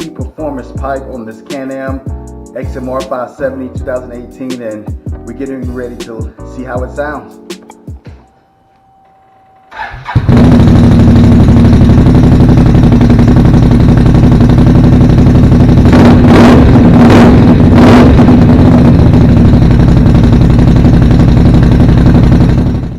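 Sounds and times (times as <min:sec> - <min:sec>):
engine starting and running: 0:09.6 - 0:22.9
engine throttle blips: 0:09.7 - 0:22.9.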